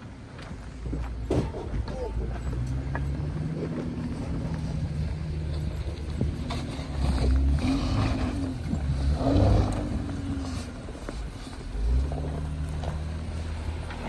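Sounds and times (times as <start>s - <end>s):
vehicle engine running: 0.4s - 14.0s.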